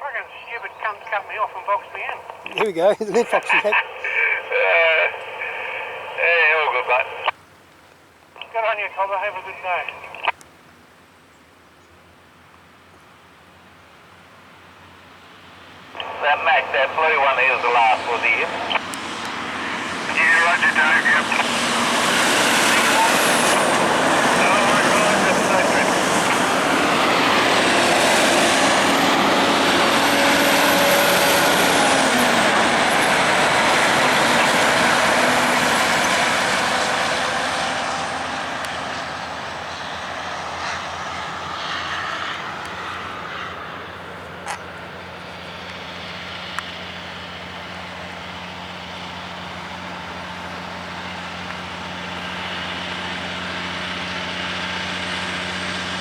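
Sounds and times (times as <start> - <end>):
engine drone: 0.0 - 7.3, 15.2 - 56.0
heavy trucks driving past: 21.2 - 56.0.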